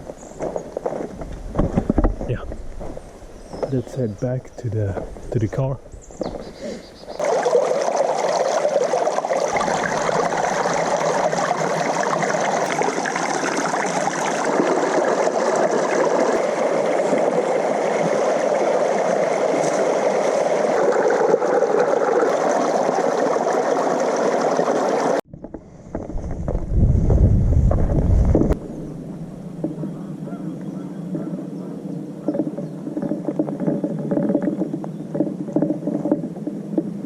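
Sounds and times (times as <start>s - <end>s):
running water rushing: 2.0s - 25.2s.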